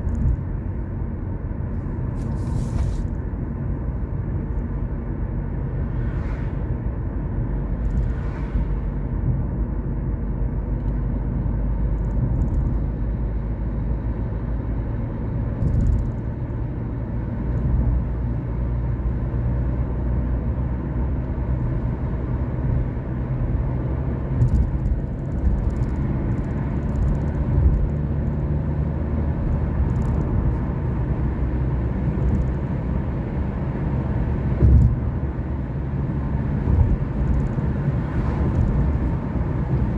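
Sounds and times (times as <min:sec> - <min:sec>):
road noise: 0:00.0 - 0:39.9
car engine running: 0:19.9 - 0:39.9.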